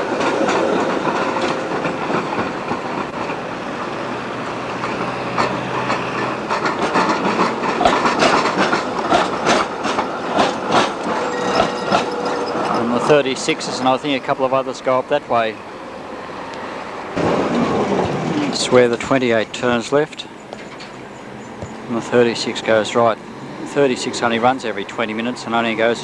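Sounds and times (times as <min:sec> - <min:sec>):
tram wheels clattering over rail joints: 0:00.0 - 0:26.0.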